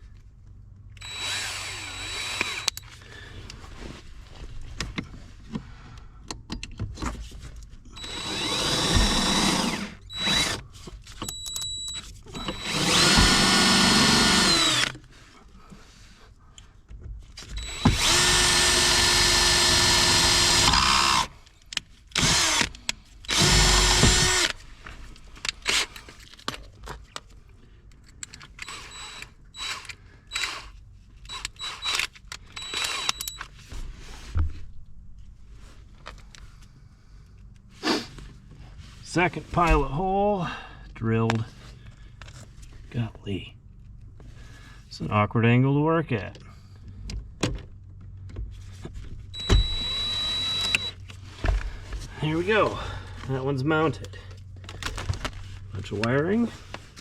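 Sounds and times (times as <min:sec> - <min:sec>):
power drill boring: 0:01.0 - 0:02.8, 0:08.0 - 0:10.6, 0:12.3 - 0:15.0, 0:17.5 - 0:21.3, 0:22.2 - 0:24.6, 0:28.6 - 0:33.4, 0:49.4 - 0:51.0
light clicks and handling noise: 0:24.7 - 0:28.7.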